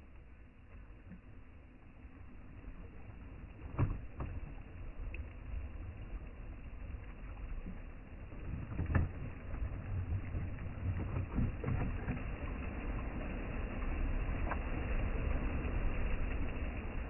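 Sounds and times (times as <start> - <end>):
sea rumble: 0.0 - 17.0
wind: 0.0 - 17.0.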